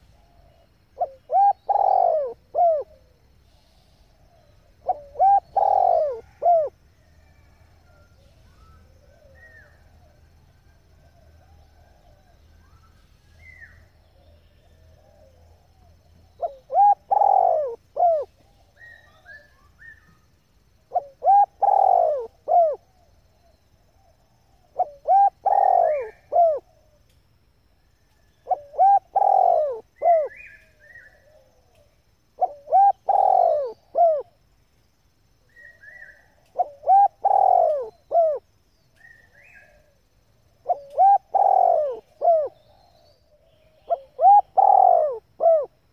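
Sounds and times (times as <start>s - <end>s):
dove cooing: 0.0s - 3.2s, 4.0s - 6.8s, 13.4s - 19.5s, 20.8s - 27.0s, 28.4s - 34.4s, 35.5s - 38.5s, 39.1s - 40.0s, 40.6s - 45.9s
small birds chirping: 0.0s - 6.7s, 28.0s - 34.7s, 35.4s - 45.9s.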